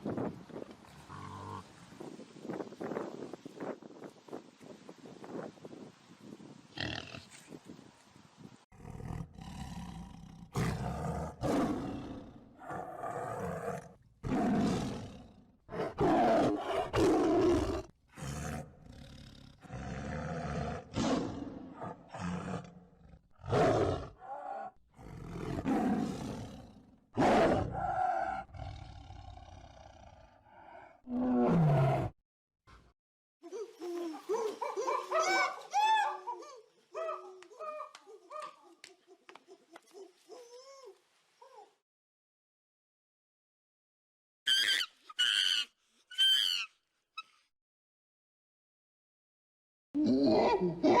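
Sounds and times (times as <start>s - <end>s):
big cat roaring: 8.8s - 32.1s.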